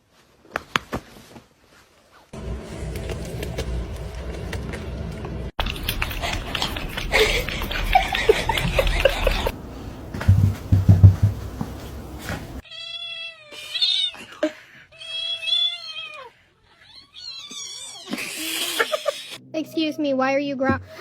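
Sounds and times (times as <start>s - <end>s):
low thumps: 8.6s - 12.6s.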